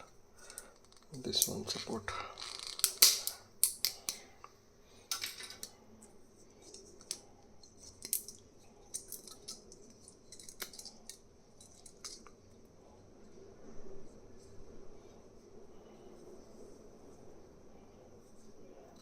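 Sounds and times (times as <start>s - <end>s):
plastic clicks and cracks: 0.0s - 5.8s, 6.7s - 12.4s.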